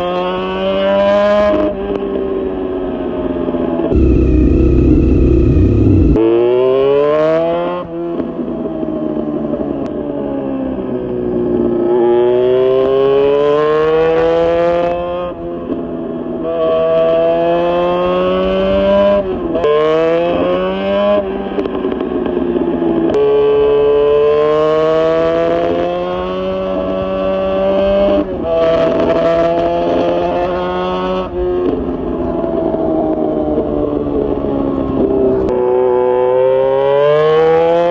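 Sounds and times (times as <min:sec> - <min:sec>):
motorcycle engine accelerating: 0:03.6 - 0:09.6.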